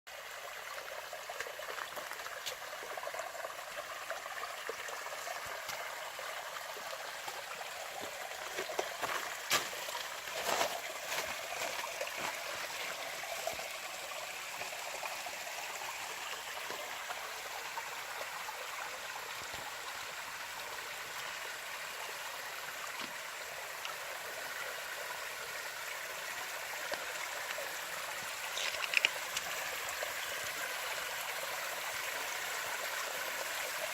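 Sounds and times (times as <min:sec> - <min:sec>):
stream flowing over rocks: 0:00.1 - 0:33.9
water splashes: 0:26.8 - 0:30.6.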